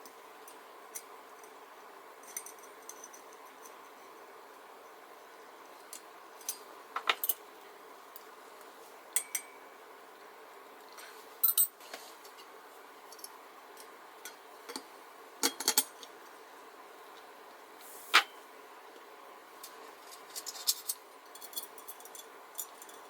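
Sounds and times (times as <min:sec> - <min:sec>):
small metal parts clinking: 0:20.3 - 0:23.0.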